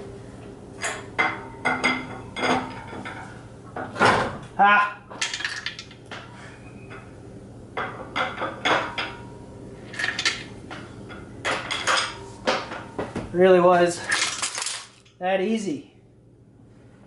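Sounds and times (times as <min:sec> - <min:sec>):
metal tools clinking: 0:09.9 - 0:10.5.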